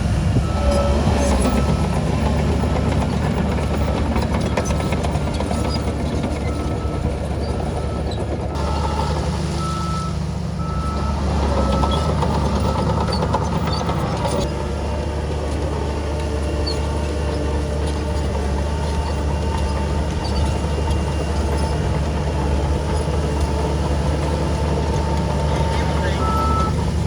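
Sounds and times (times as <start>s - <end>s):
heavy diesel engines running: 0.0s - 27.0s
reversing alarm beeping: 0.4s - 3.1s, 6.4s - 14.5s, 24.2s - 26.8s.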